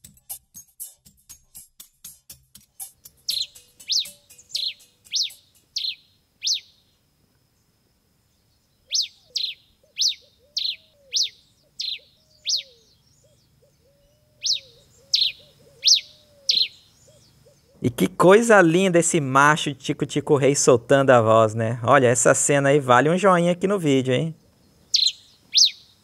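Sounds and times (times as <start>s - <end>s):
finch singing: 3.0s - 6.9s, 8.7s - 18.1s, 24.2s - 26.0s.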